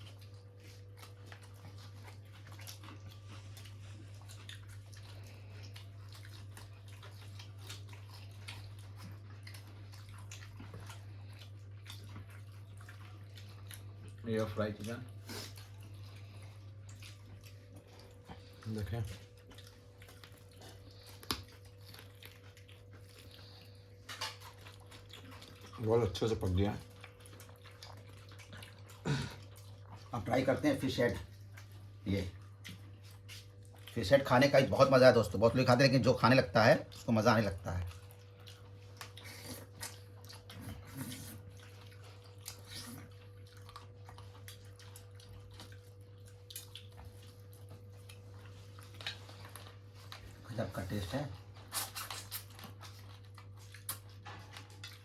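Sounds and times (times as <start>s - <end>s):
person chewing: 0.0s - 34.9s, 37.8s - 50.6s, 51.4s - 55.0s
steady electrical hum: 0.0s - 55.0s.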